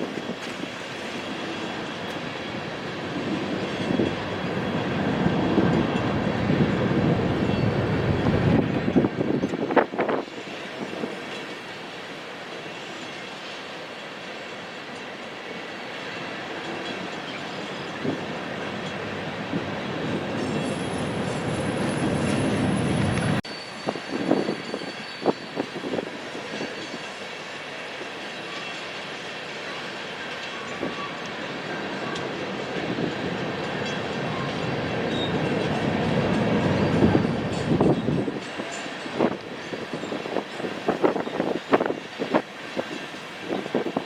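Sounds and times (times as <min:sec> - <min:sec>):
train rumbling past: 0:00.0 - 0:44.0
high wheel squeal: 0:16.7 - 0:27.0, 0:33.8 - 0:42.0.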